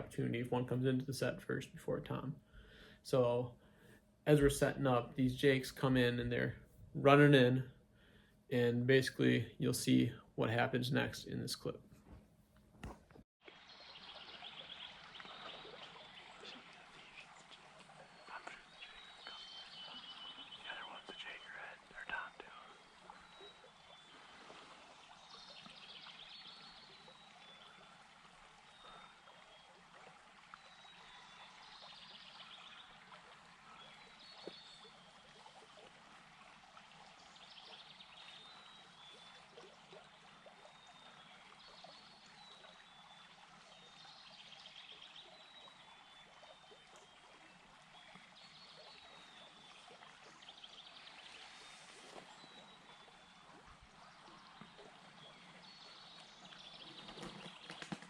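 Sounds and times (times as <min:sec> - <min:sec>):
small birds singing: 0:13.6 - 0:29.8, 0:30.5 - 0:35.8, 0:37.2 - 0:58.0.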